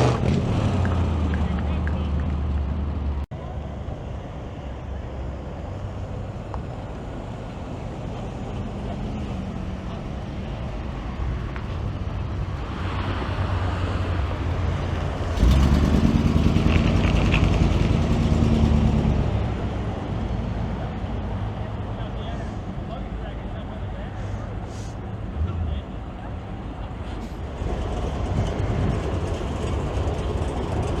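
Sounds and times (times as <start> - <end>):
car driving by: 0.0 - 31.0
car engine running: 24.6 - 31.0.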